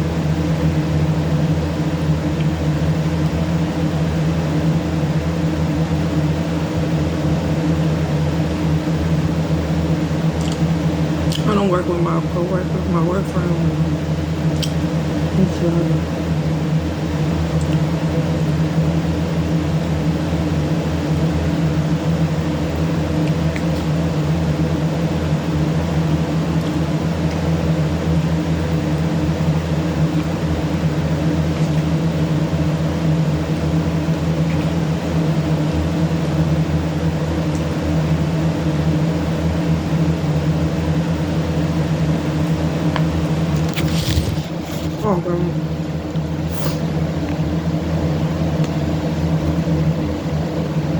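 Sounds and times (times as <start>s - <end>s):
motor humming: 40.7s - 47.2s.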